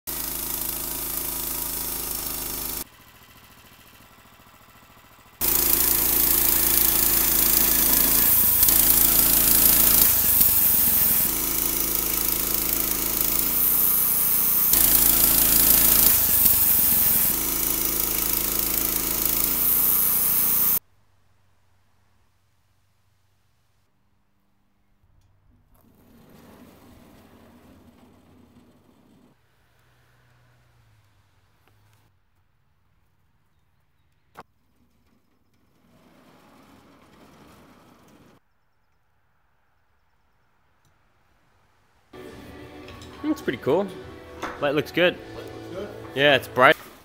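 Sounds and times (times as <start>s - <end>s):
band sawmill running: 0.1s - 20.8s, 42.2s - 47.0s.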